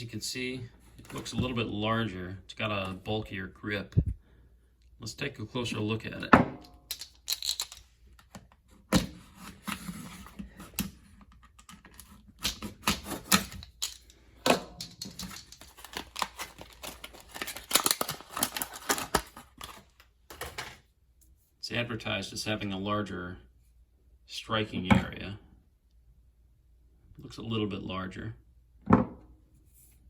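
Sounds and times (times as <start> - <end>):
hand tool handling clicks and taps: 6.6 - 9.1, 10.7 - 20.7.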